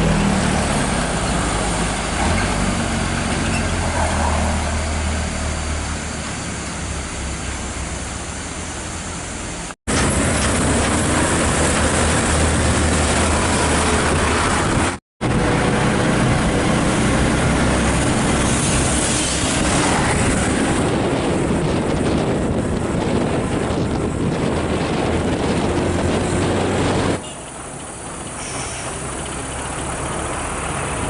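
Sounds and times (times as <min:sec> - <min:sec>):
diesel truck engine running: 0:00.0 - 0:31.0.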